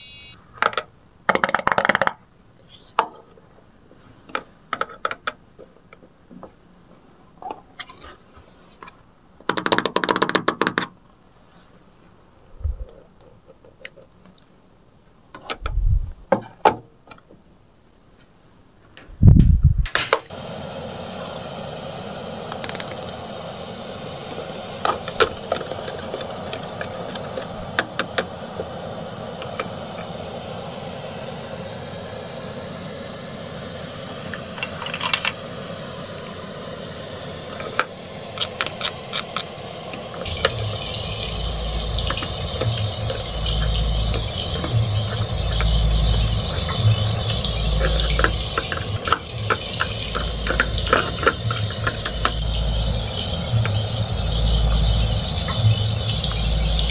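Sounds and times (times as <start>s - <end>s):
toy stove sizzling hiss: 20.2s - 56.9s
pulsing low hum: 40.3s - 56.9s.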